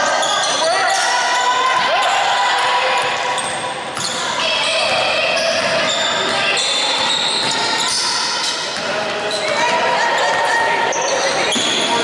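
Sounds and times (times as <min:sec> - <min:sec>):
sneakers squeaking on court floor: 0:02.6 - 0:12.0
basketball bouncing: 0:04.8 - 0:07.8.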